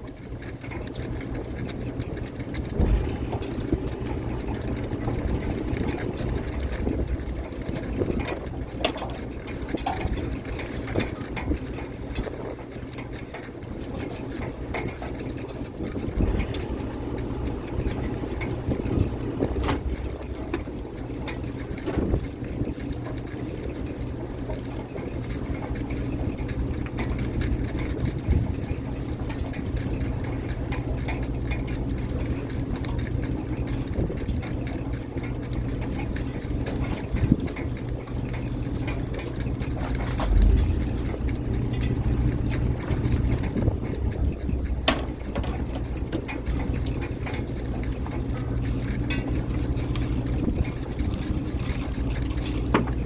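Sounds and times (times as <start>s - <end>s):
boat engine running: 0.0s - 53.0s
water sloshing: 1.0s - 25.5s, 33.5s - 53.0s.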